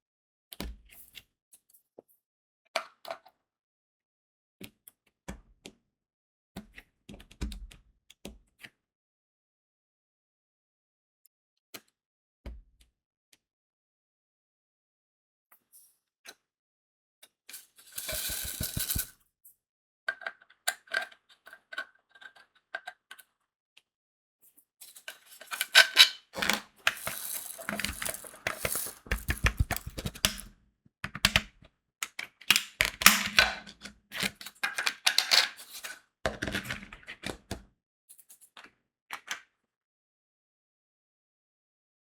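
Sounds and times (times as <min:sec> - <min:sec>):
beads clicking and rattling: 0:17.5 - 0:19.1, 0:24.9 - 0:30.5.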